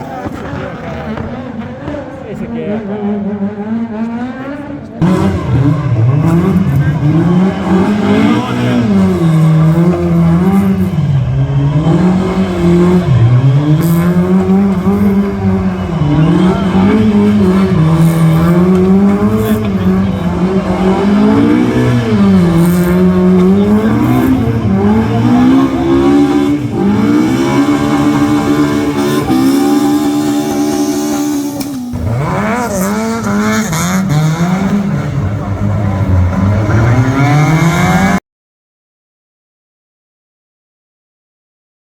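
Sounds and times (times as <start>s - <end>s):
rally car engine revving: 0.0s - 38.2s.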